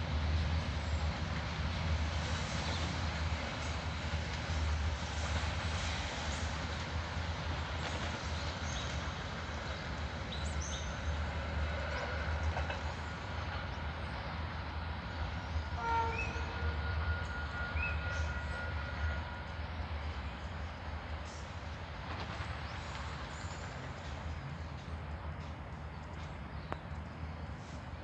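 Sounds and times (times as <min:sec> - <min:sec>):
diesel freight train rumble: 0:00.0 - 0:28.0.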